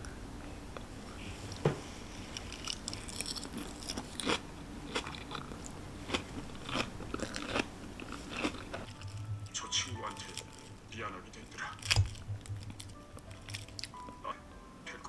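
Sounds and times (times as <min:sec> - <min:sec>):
person chewing crunchy salad: 0:01.5 - 0:09.4, 0:11.8 - 0:14.2.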